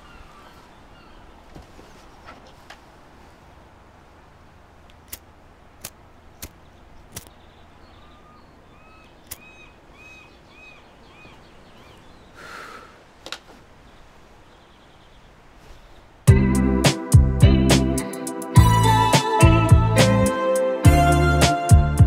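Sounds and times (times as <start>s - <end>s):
faint outdoor ambience: 0.0s - 22.0s
sharp clicks: 4.9s - 7.4s, 9.2s - 9.5s
bird calling short notes: 8.0s - 12.9s.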